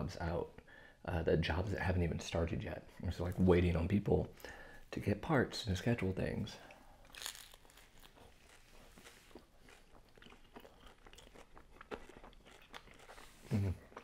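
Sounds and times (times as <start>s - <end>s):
person chewing crunchy pizza: 7.0s - 14.0s.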